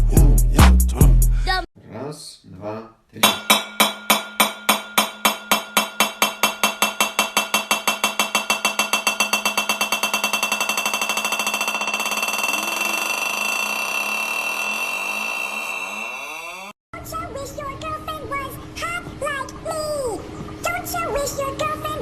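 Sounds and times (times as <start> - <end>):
looped sound blending into buzzing tone: 10.0 - 16.8.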